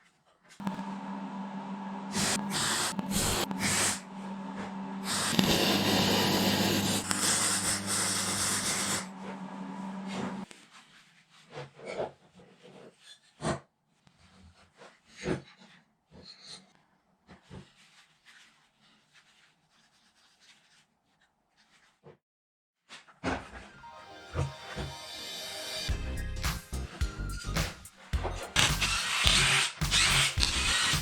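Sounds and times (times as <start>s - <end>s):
machine humming: 0.6s - 10.4s
loud hissing rush: 2.1s - 4.0s, 5.0s - 9.1s.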